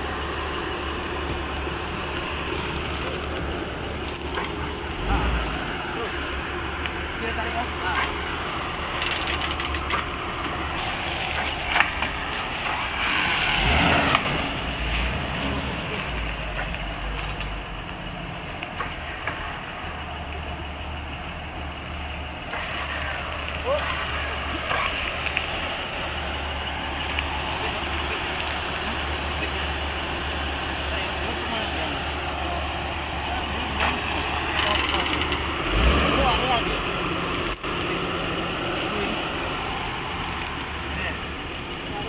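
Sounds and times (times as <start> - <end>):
rush of noise: 0.0 - 17.8
engine running steadily: 0.0 - 42.0
sharp clicks: 33.8 - 35.9.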